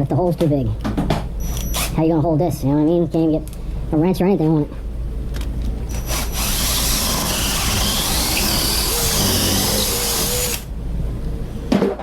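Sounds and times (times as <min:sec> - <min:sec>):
handheld power tool running: 0:05.9 - 0:10.7.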